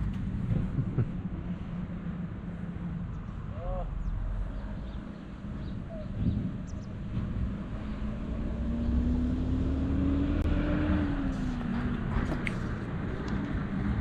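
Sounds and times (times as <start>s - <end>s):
low road rumble: 0.0s - 14.0s
vehicle engine passing: 6.9s - 14.0s.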